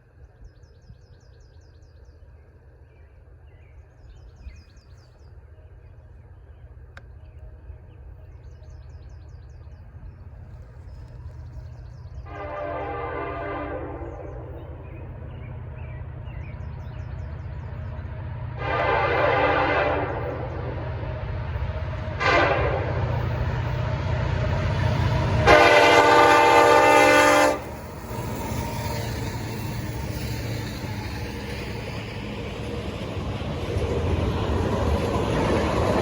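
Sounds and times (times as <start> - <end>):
low rumble of passing train: 0.0 - 36.0
train horn blasts: 12.2 - 14.6, 18.5 - 23.4, 24.6 - 27.8.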